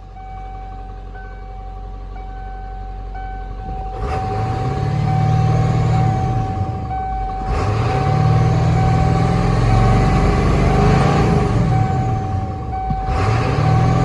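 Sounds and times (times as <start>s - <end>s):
diesel engine revving: 3.1s - 14.0s.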